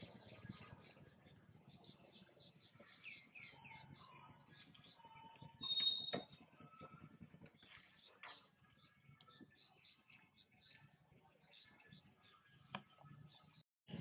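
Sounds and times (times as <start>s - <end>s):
bird whistling clear notes: 3.4s - 7.2s.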